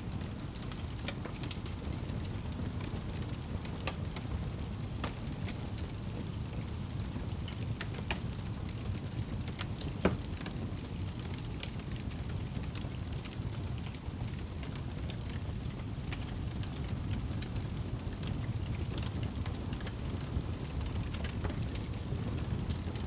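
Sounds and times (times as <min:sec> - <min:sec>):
fire crackling and popping: 0:00.0 - 0:23.0
rain rushing: 0:15.4 - 0:23.0.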